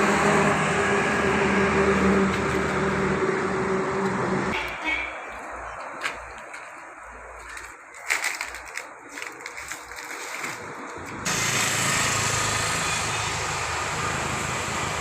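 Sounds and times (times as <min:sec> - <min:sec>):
engine running: 0:00.0 - 0:04.6, 0:10.5 - 0:15.0.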